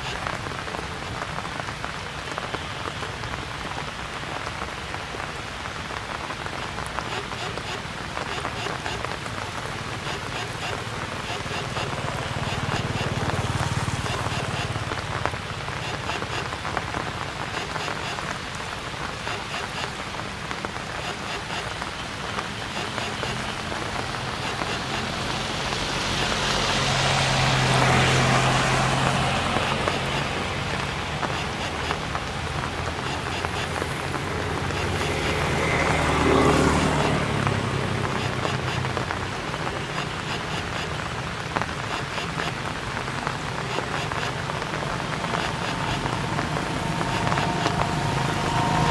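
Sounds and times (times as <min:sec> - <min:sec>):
steady rain falling: 0:00.0 - 0:48.9
motor vehicle passing: 0:23.5 - 0:42.4, 0:44.0 - 0:48.9.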